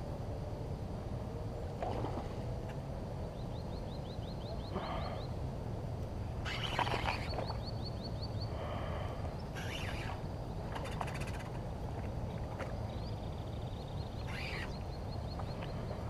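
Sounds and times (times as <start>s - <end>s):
birds chirping: 3.3s - 5.4s, 6.4s - 16.0s
flowing river water: 6.4s - 7.6s, 9.5s - 16.0s
harsh bird calls: 6.4s - 11.6s, 13.0s - 16.0s.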